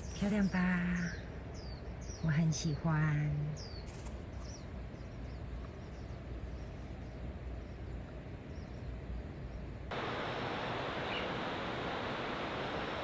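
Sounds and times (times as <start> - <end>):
stream water rushing: 9.9 - 13.0
bird chirps: 10.0 - 11.8.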